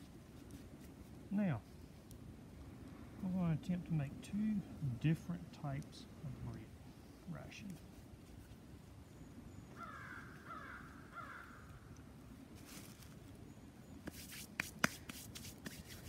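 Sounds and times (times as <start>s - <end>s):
bird harsh calls: 9.7s - 11.7s
rustling handling noise: 12.5s - 13.4s.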